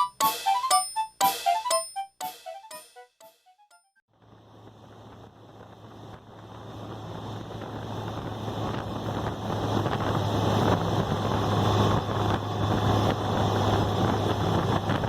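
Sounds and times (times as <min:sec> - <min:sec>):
road noise: 0:04.1 - 0:15.0
wind rushing over microphone: 0:04.5 - 0:15.0.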